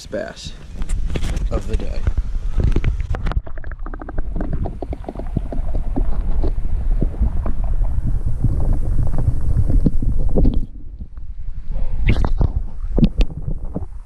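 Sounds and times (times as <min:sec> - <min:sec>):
wind buffeting microphone: 0:00.4 - 0:14.0.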